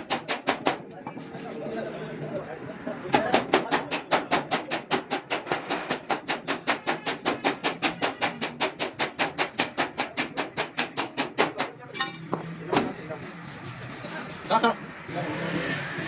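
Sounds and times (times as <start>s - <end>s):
hammer tapping sheet metal: 0.0s - 1.0s, 3.1s - 12.4s.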